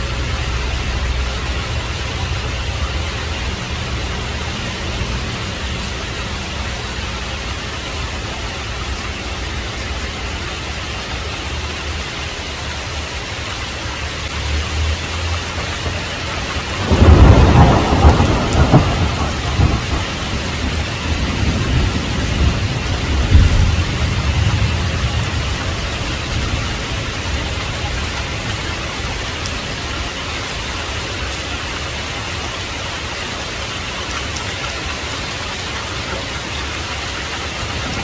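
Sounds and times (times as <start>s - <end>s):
heavy rain falling: 0.0s - 38.0s
distant thunder rumbling: 15.7s - 29.8s, 37.2s - 38.0s
loud thunderclap: 16.6s - 26.8s.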